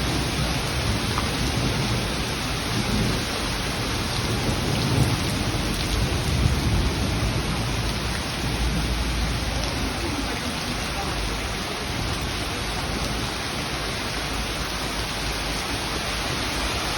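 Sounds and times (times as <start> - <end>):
low rumble of thunder: 0.0 - 10.2
heavy rain falling: 0.0 - 16.9.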